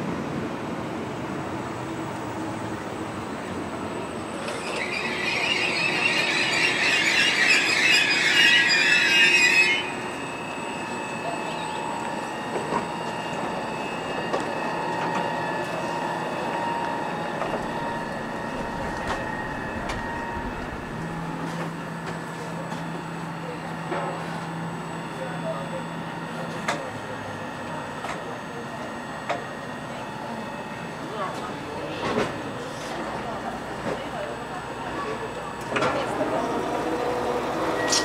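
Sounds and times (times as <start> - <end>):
train wheels and brakes squealing: 3.9 - 20.5, 36.7 - 38.0.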